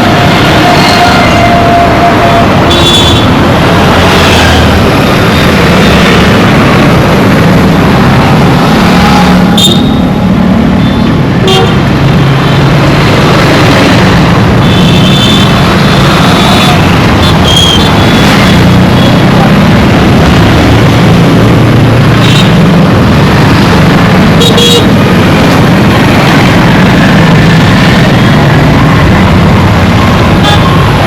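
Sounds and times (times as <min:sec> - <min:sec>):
road traffic engines: 0:00.0 - 0:31.0
vehicle horn toots: 0:11.4 - 0:11.8.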